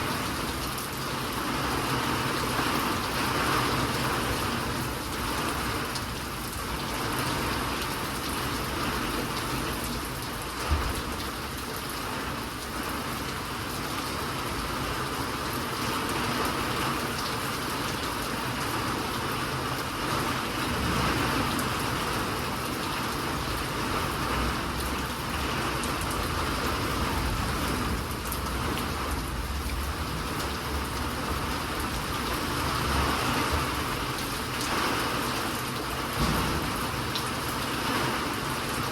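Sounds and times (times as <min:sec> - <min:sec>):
steady rain falling: 0:00.0 - 0:38.9
brief low thump: 0:36.2 - 0:36.8.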